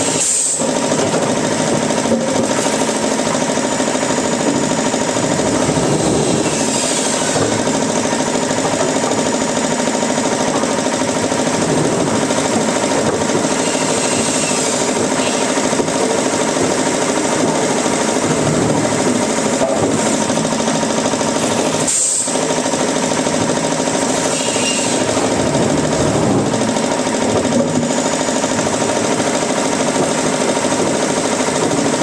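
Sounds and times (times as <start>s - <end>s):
woodworking machinery running: 0.0s - 32.0s.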